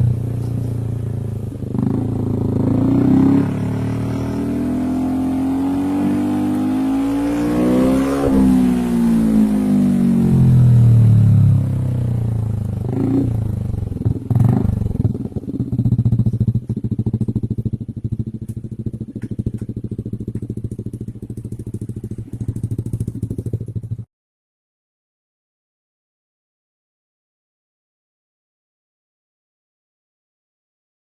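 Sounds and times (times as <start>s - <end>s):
scooter engine revving and idling: 0.0s - 24.1s.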